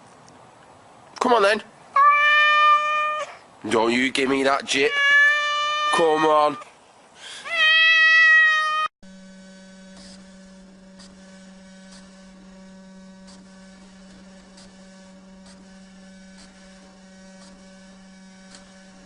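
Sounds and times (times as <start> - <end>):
cat meowing: 2.0 - 3.4, 4.8 - 6.6, 7.4 - 8.9
low electrical hum: 9.1 - 19.0.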